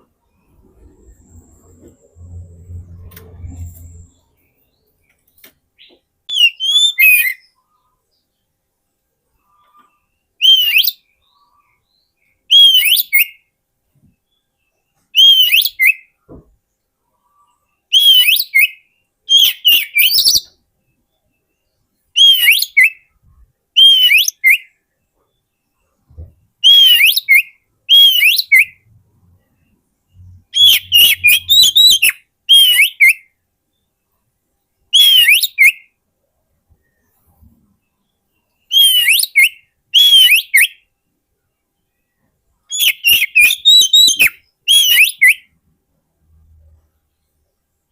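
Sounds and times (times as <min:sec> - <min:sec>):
magpie-robin whistled song: 0:05.8 - 0:08.3, 0:09.4 - 0:13.5, 0:14.1 - 0:16.2, 0:17.8 - 0:28.9, 0:29.5 - 0:33.9, 0:34.9 - 0:36.0, 0:38.0 - 0:40.9, 0:42.7 - 0:45.6.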